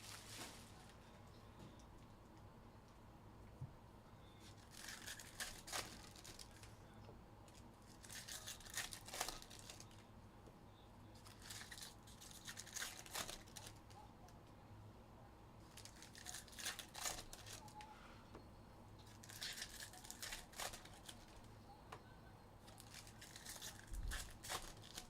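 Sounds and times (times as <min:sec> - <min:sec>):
foil wrappers tearing and crinkling: 0:00.0 - 0:00.8, 0:04.4 - 0:06.7, 0:07.8 - 0:10.0, 0:11.2 - 0:13.8, 0:15.7 - 0:17.8, 0:19.0 - 0:21.4, 0:22.7 - 0:25.0.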